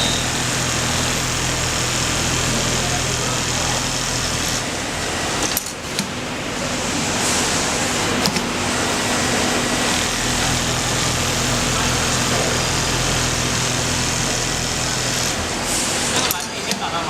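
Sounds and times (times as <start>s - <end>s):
sewing machine humming: 0.0s - 17.0s.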